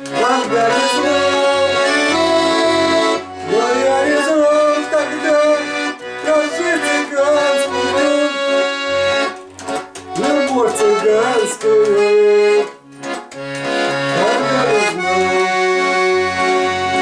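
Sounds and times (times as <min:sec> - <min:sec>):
accordion playing: 0:00.0 - 0:17.0.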